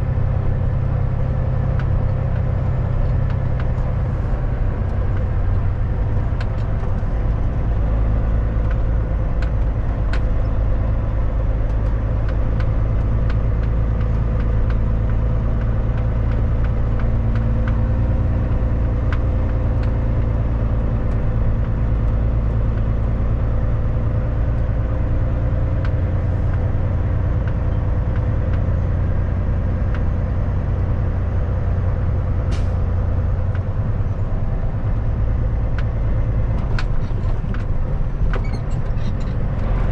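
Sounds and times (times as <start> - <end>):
diesel truck engine drone: 0.0 - 39.9
road noise: 0.0 - 39.9.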